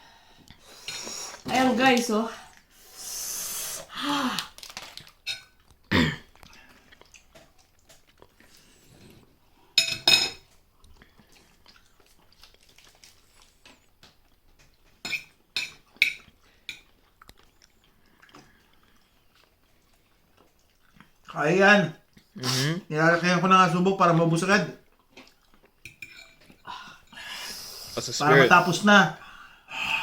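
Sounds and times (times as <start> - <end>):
chewing and slurping noodles: 6.3 - 9.5, 10.6 - 15.0, 15.8 - 21.3, 24.8 - 28.6
utensils clinking against bowl: 25.8 - 26.6.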